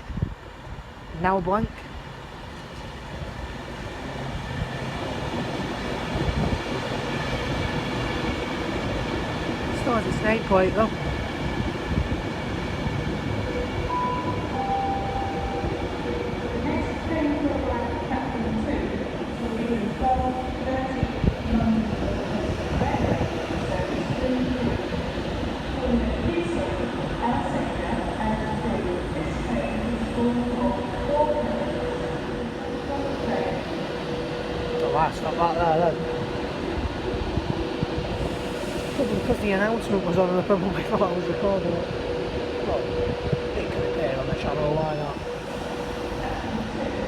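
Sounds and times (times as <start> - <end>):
electric train rumbling past: 0.0 - 47.0.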